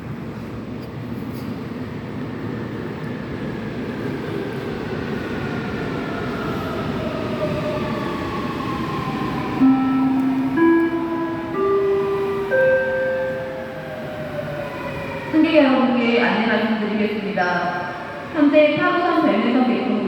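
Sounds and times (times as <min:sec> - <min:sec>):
subway train braking: 0:00.0 - 0:20.0
chime of steady tones: 0:09.6 - 0:15.0.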